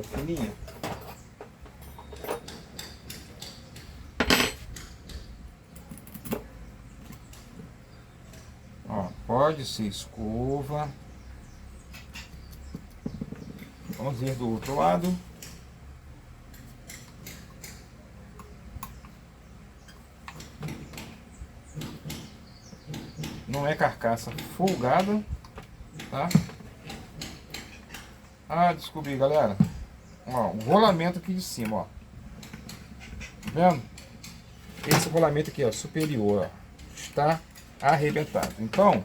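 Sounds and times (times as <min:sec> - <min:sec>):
metal tools clinking and tapping: 0:00.0 - 0:04.9, 0:28.8 - 0:29.6.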